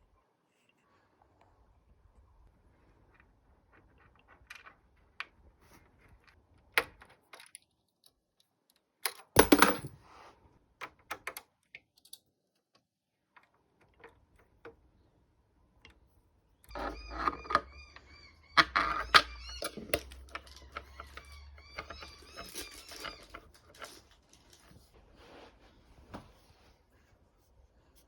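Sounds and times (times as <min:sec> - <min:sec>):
objects clicking and tapping: 0:03.7 - 0:09.9, 0:18.6 - 0:25.0.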